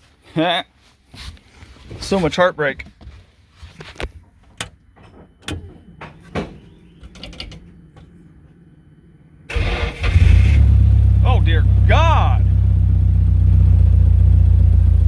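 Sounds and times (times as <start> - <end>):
car engine cranking and starting: 9.5 - 15.0.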